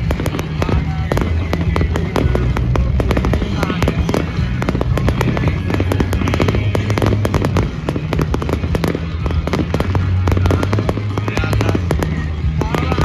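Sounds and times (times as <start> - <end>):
bass music over loudspeakers: 0.0 - 13.0
fireworks bangs and crackles: 0.0 - 13.0.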